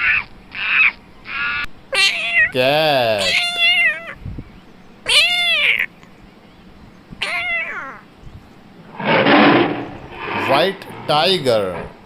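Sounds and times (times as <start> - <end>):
cat meowing: 1.4 - 2.6, 3.2 - 4.2, 5.0 - 5.9, 7.2 - 8.0.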